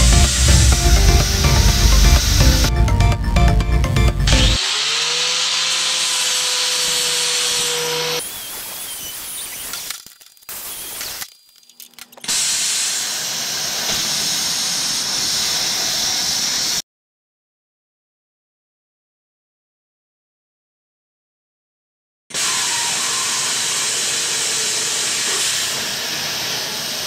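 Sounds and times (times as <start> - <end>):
welding arc hissing and crackling: 0.0 - 2.7, 6.9 - 16.8, 22.4 - 27.0
angle grinder running: 0.0 - 11.2, 22.4 - 27.0.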